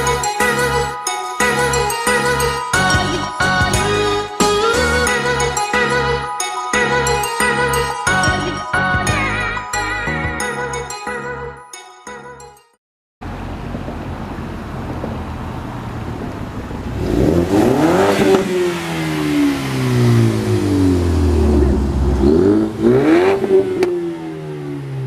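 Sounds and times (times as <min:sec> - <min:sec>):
car engine idling and revving: 0:13.2 - 0:25.0
exhaust crack: 0:13.2 - 0:25.0.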